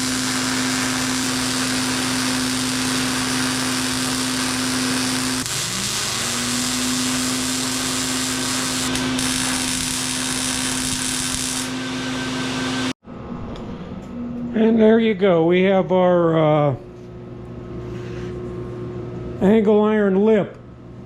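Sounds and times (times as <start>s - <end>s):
electric power tool running: 0.0s - 13.0s.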